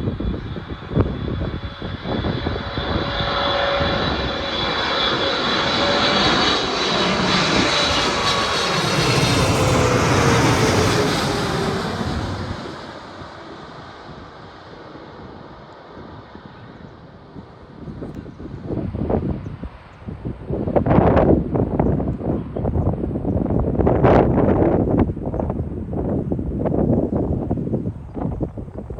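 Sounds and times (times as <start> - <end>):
wind buffeting microphone: 0.0 - 14.3, 16.0 - 28.9
jet engines passing by: 0.0 - 28.9.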